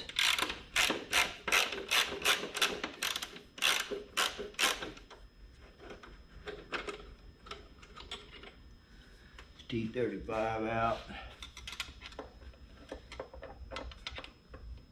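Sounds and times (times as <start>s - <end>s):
hand tool ratcheting clicks: 0.0s - 4.9s.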